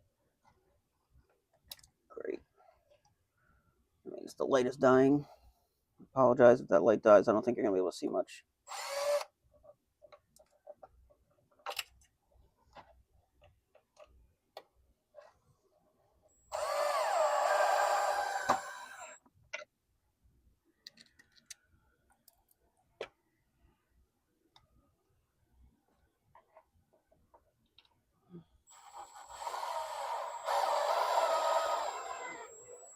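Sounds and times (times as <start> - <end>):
power drill driving a screw: 8.7 - 9.3, 16.5 - 19.2, 28.7 - 32.9.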